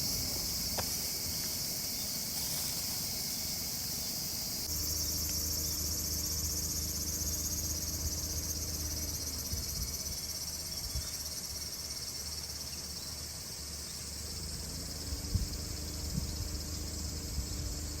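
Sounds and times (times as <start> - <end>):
crickets chirring: 0.0 - 18.0
low steady hum: 4.6 - 18.0.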